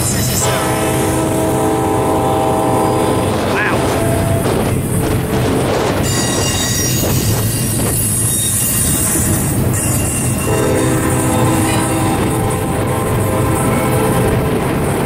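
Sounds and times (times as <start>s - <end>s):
lower wheel squealing tones: 0.0s - 4.9s, 5.9s - 14.6s
train wheels rumbling on rail: 0.0s - 15.0s
high ringing wheel squeal: 6.0s - 12.2s.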